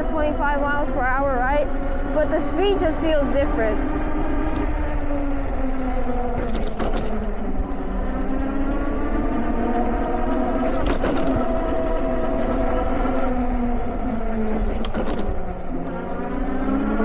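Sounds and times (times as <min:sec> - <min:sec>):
electric motor whining: 0:00.0 - 0:17.0
wind rumble on microphone: 0:00.0 - 0:17.0
brief rattle: 0:04.5 - 0:16.4.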